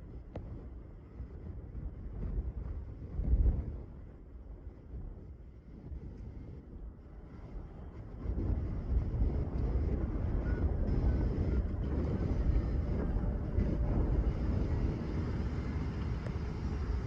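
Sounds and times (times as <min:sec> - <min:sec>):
wind buffeting microphone: 0:00.0 - 0:17.0
jet engines rumbling: 0:06.8 - 0:17.0.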